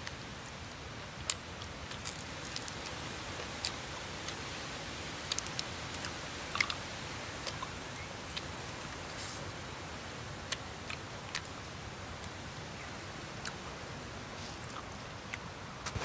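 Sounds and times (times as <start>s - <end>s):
chewing crunchy chicken: 1.2s - 4.5s, 5.2s - 6.8s, 14.4s - 15.5s.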